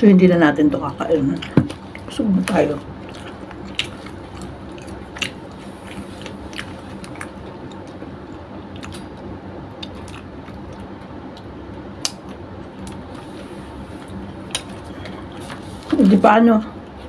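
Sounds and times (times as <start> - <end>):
low hum: 0.0 - 17.0
person chewing: 1.4 - 16.0
wet mouth clicks and smacks: 9.8 - 13.0.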